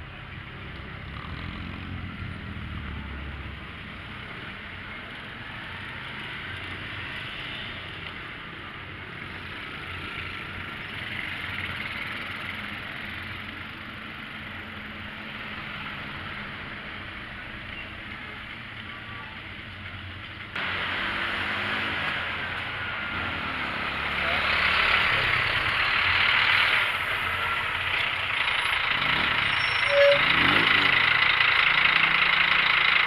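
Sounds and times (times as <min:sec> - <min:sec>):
engine rumble: 0:18.2 - 0:33.0
road traffic hiss: 0:19.4 - 0:33.0.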